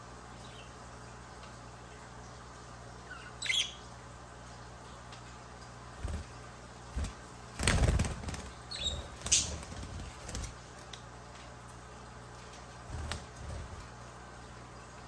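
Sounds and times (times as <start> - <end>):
high bird chirp: 3.1 - 3.9, 8.6 - 9.7
bird wings fluttering: 6.0 - 10.9, 12.8 - 14.0.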